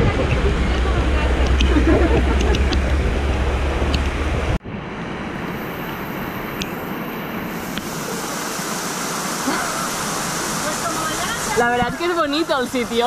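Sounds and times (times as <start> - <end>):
wind rumbling on microphone: 0.0 - 9.0
heavy rain pouring: 5.6 - 13.0.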